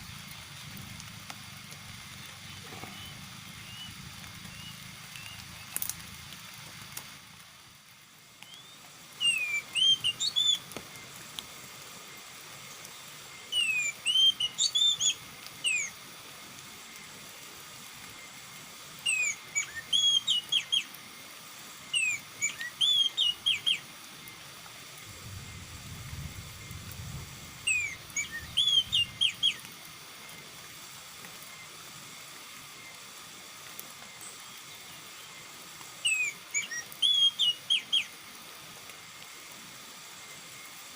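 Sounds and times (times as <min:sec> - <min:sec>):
bird whistled song: 0:02.9 - 0:05.8, 0:08.4 - 0:10.7, 0:13.5 - 0:16.0, 0:19.0 - 0:20.9, 0:21.9 - 0:23.9, 0:27.6 - 0:29.6, 0:36.0 - 0:38.1.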